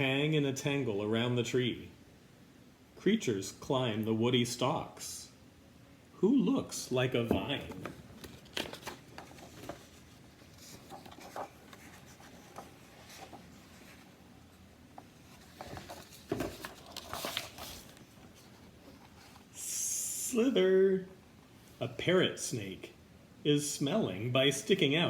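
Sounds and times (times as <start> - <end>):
book pages rustling: 7.2 - 19.5.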